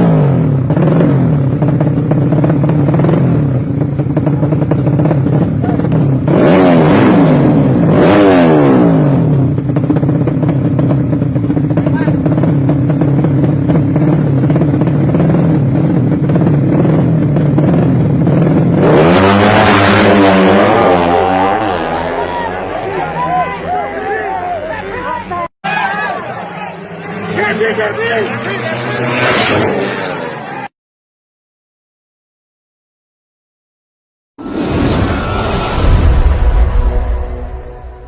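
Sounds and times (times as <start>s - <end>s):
motorcycle engine idling and revving: 0.0s - 25.5s.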